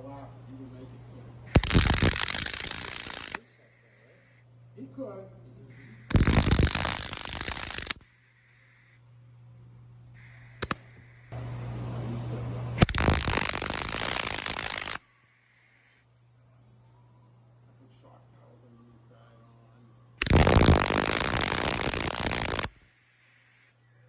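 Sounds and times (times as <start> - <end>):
sharp clicks: 1.5 - 4.4, 5.8 - 9.0, 10.2 - 11.8, 12.8 - 16.0, 20.2 - 23.7
welder arc crackling: 1.5 - 4.4, 5.7 - 9.0, 10.2 - 11.8, 12.8 - 16.0, 20.2 - 23.7.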